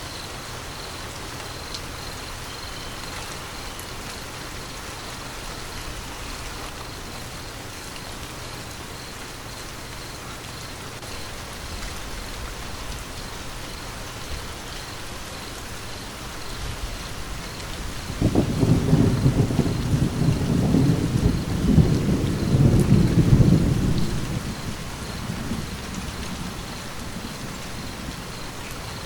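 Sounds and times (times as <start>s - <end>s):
steady rain falling: 0.0s - 29.0s
low thunder rumble: 16.6s - 29.0s.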